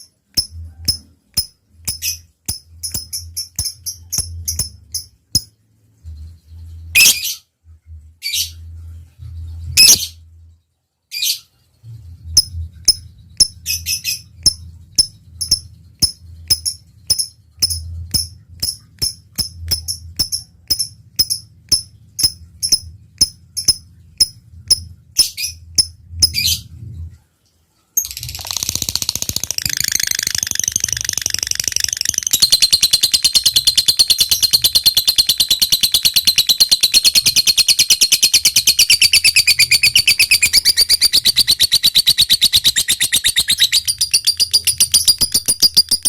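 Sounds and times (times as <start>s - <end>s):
bird chattering trill: 28.0s - 46.0s
bird sharp chirps: 28.0s - 46.0s.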